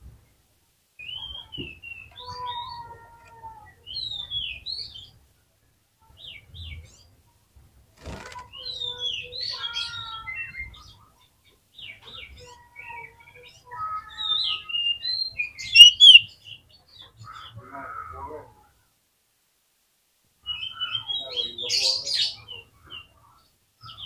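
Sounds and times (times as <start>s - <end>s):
bird singing whistled phrases: 14.3s - 16.3s.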